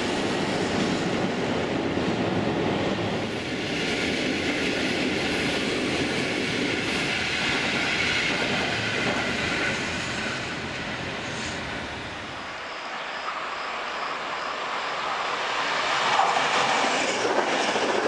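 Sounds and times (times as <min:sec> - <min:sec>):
train wheels on rails: 0:00.0 - 0:13.1, 0:13.8 - 0:18.0
high hiss: 0:06.8 - 0:15.8.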